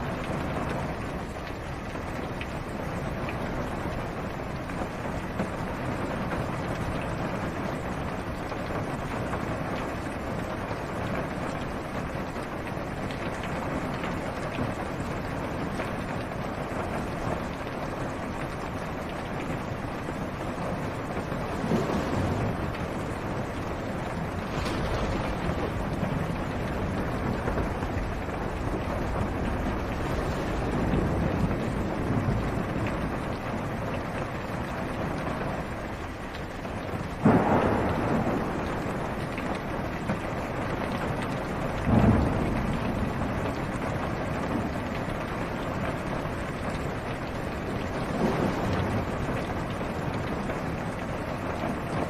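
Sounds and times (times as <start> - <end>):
rain on car roof: 0.0 - 52.0
distant thunder rumbles: 13.0 - 36.0, 37.0 - 52.0.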